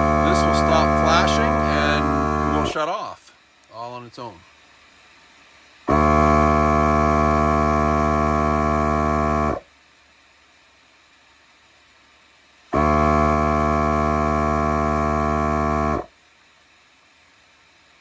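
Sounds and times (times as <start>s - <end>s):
inflator compressor buzzing: 0.0s - 2.8s, 5.8s - 9.7s, 12.7s - 16.1s.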